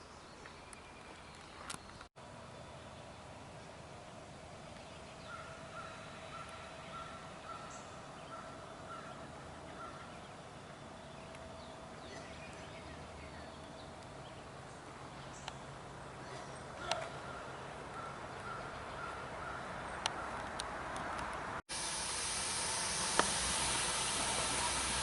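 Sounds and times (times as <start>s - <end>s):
steady high drone: 21.7s - 25.0s.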